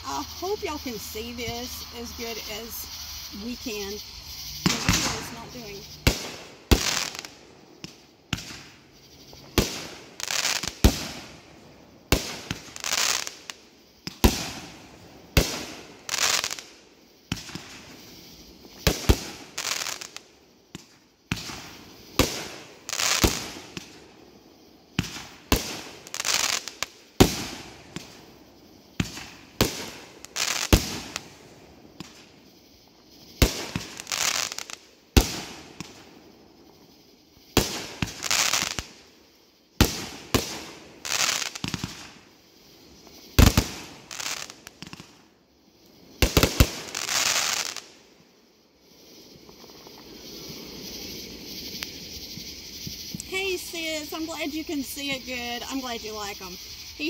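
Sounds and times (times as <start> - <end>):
firework hissing crackle: 0.0 - 57.0
firework bangs: 0.7 - 24.0, 24.9 - 28.3, 28.9 - 32.4, 33.3 - 36.2, 39.8 - 42.3, 43.0 - 45.2, 46.1 - 47.9.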